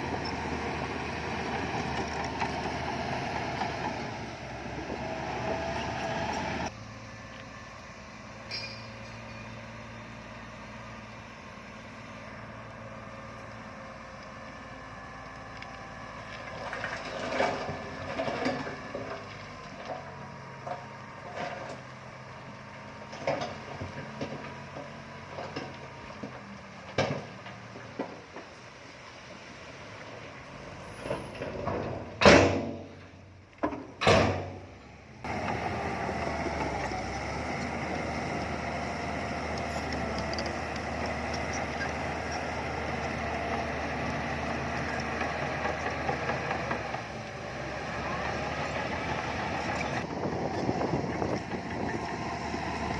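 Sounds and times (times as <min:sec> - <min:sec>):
heavy machinery engines running: 0:00.0 - 0:28.6, 0:34.5 - 0:52.9
metal clanks: 0:08.5 - 0:09.4
steady engine drone: 0:34.6 - 0:52.9.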